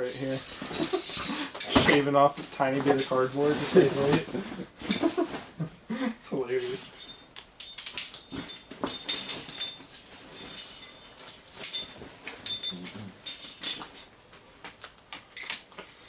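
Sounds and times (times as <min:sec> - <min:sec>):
metal hardware clinking: 0:00.0 - 0:04.2, 0:06.5 - 0:14.3, 0:15.2 - 0:15.7
rustling handling noises: 0:00.0 - 0:05.7, 0:06.4 - 0:16.0.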